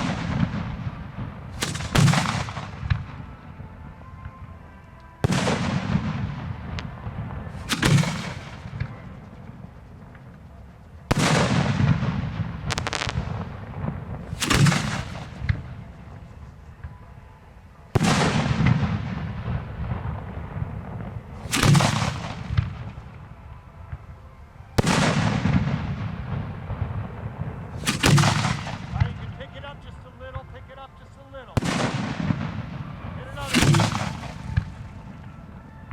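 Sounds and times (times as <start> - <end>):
firework booms: 0.0 - 3.3, 5.2 - 10.5, 11.1 - 16.2, 17.9 - 23.3, 31.6 - 35.9
rumbling echo: 5.2 - 17.0.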